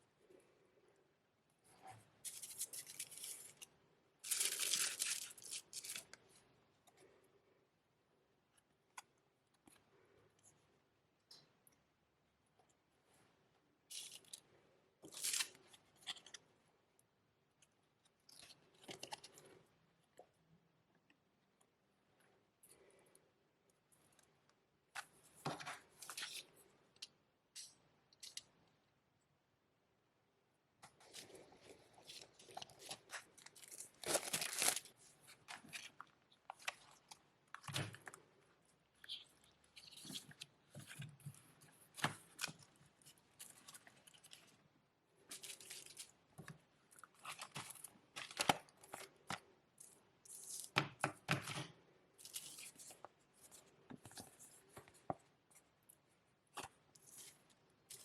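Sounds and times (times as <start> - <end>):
packaging crinkling: 2.3 - 6.1, 32.1 - 38.2
packaging tearing: 33.5 - 34.9.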